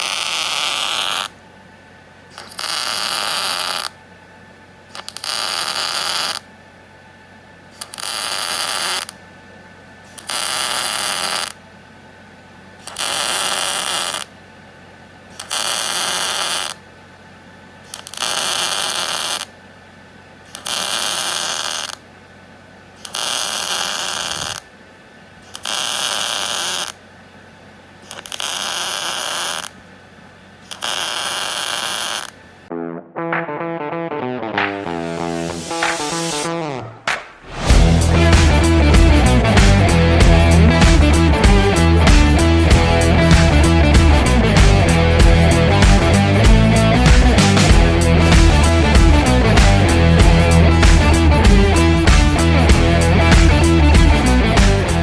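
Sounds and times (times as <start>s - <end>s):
welding arc crackling: 0.0s - 1.4s, 2.3s - 4.0s, 4.9s - 6.4s, 7.8s - 9.2s, 10.1s - 11.6s, 12.8s - 14.3s, 15.3s - 16.8s, 17.9s - 19.5s, 20.5s - 22.0s, 23.0s - 24.7s, 25.4s - 27.0s, 28.0s - 29.8s, 30.6s - 32.6s, 37.4s - 55.0s.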